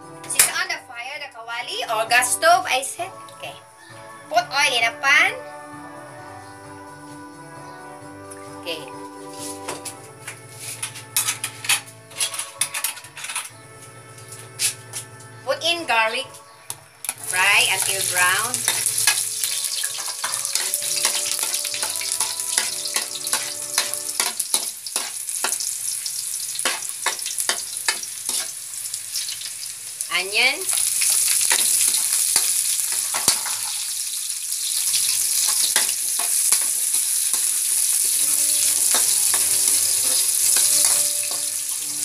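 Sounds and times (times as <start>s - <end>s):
metal spoon scraping wok: 9.2s - 15.3s, 17.1s - 29.4s, 30.7s - 33.9s, 34.8s - 42.0s
garlic frying in oil: 17.1s - 42.0s.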